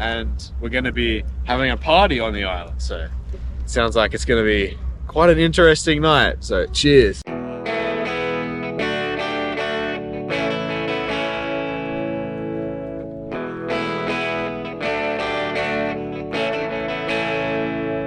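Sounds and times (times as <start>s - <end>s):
plucked guitar music: 6.6s - 18.0s.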